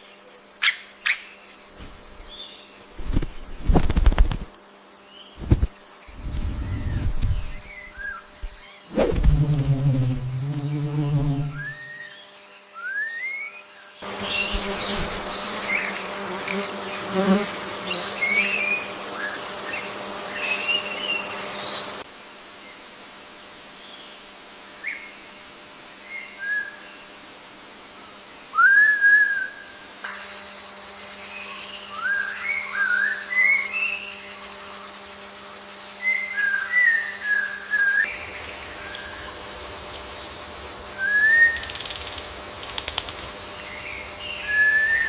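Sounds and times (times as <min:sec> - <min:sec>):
insect hum and hiss: 0:00.0 - 0:45.0
birds whistled chirps: 0:11.5 - 0:13.7, 0:41.0 - 0:42.4, 0:43.7 - 0:45.0.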